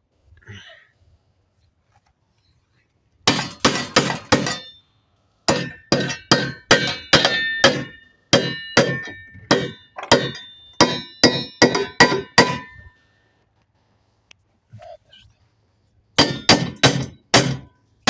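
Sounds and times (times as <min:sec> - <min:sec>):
hammer striking metal: 0:03.3 - 0:04.8, 0:05.5 - 0:12.9, 0:16.2 - 0:17.7.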